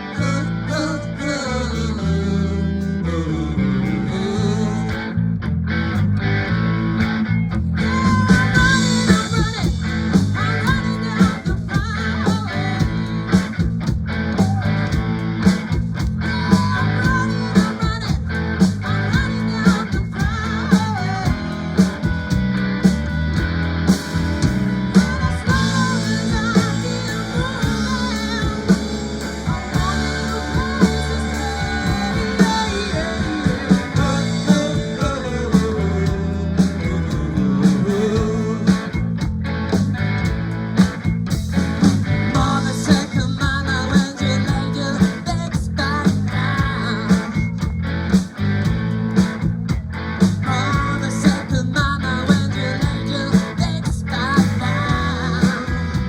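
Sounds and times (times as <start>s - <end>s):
rock band playing instrumental: 5.8s - 56.0s.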